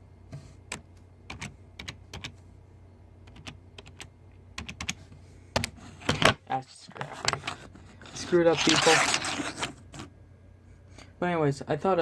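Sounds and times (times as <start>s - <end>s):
keyboard keys clicking: 3.3s - 5.0s.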